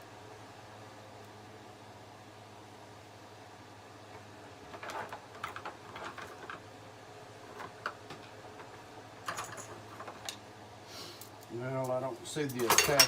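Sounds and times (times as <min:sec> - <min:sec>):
small metal parts clicking and clinking: 0:09.2 - 0:10.4, 0:11.8 - 0:13.0.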